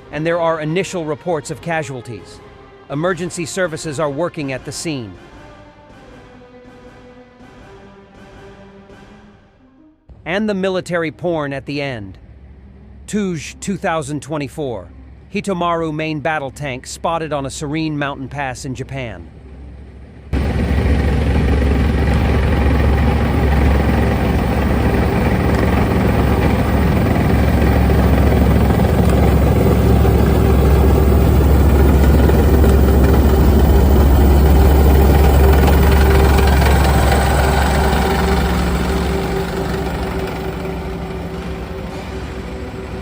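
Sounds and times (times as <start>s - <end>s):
tank diesel engine rumbling: 19.3s - 43.0s.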